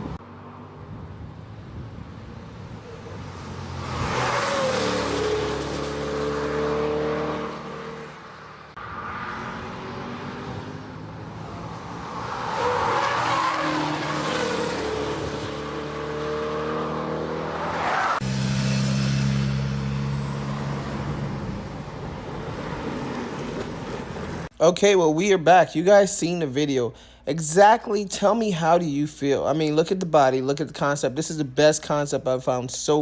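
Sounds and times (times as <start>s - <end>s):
car engine passing at speed: 0.0s - 24.5s.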